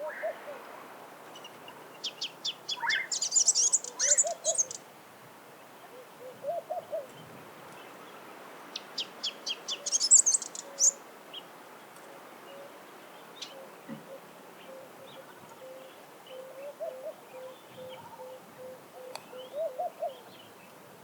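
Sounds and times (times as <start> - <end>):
bird twittering song: 1.3 - 4.8, 8.8 - 11.4.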